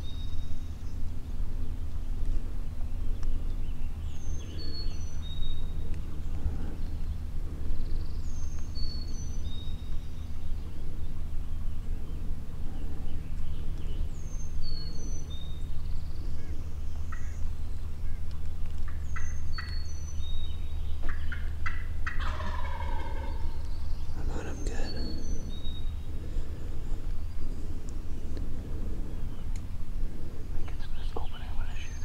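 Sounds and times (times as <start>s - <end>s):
turkey gobbling: 21.1s - 23.6s.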